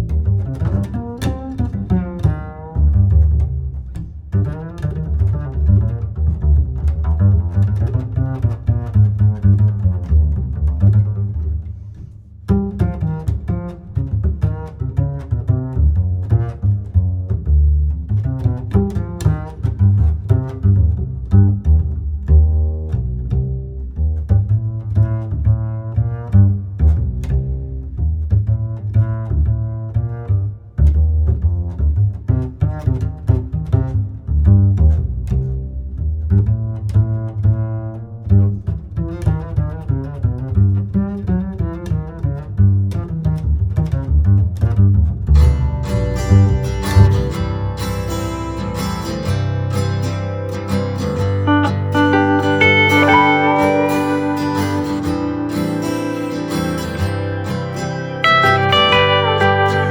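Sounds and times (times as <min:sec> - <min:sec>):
plucked bass line: 0:00.0 - 0:11.8, 0:12.4 - 0:59.9
string instruments: 0:00.0 - 0:59.9.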